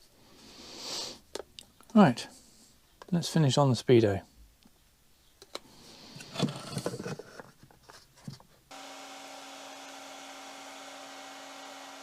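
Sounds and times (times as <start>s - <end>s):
heat gun blowing: 8.7s - 12.0s.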